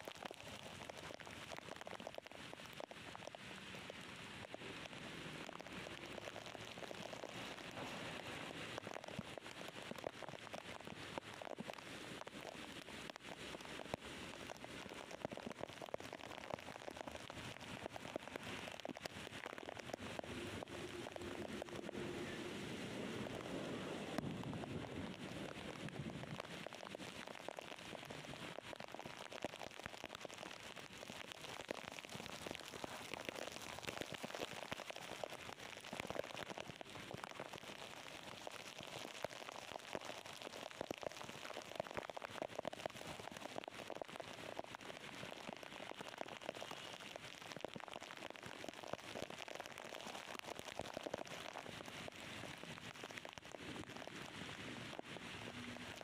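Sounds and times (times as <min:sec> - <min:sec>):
heavy rain falling: 0:03.5 - 0:29.0.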